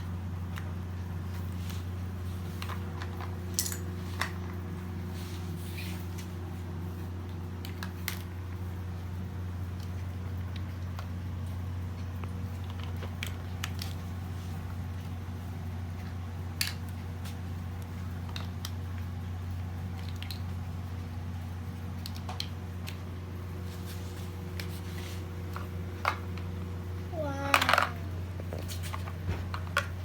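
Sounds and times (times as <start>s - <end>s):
steady low hum: 0.0s - 30.0s
plastic toys clicking: 27.2s - 28.0s.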